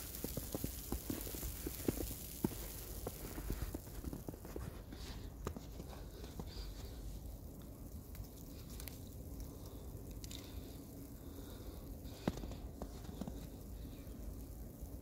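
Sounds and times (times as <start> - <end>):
footsteps on snow: 0.0 - 7.0
low outdoor rumble: 0.0 - 15.0.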